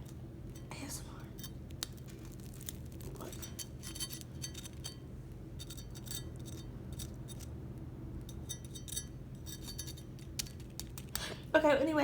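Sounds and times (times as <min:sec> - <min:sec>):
knife crunching fried breading: 0:01.7 - 0:04.9.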